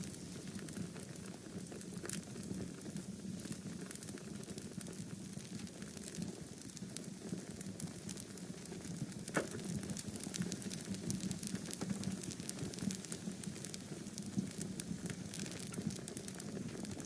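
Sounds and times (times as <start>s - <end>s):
wood fire crackling: 0.0s - 17.0s
sharp fire pop: 9.3s - 9.7s.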